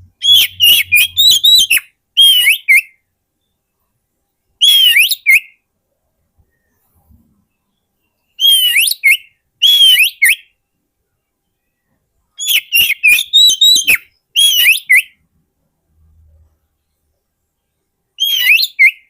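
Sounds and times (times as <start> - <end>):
bird singing whistled notes: 0.0 - 3.9, 4.5 - 5.6, 7.5 - 15.2, 18.2 - 19.0.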